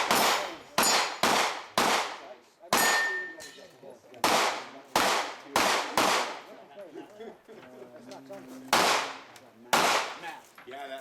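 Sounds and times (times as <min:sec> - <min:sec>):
bullet ringing steel target: 0:00.0 - 0:02.1, 0:02.7 - 0:03.7
gunshots with echo: 0:00.0 - 0:03.2, 0:04.2 - 0:06.4, 0:08.7 - 0:10.2.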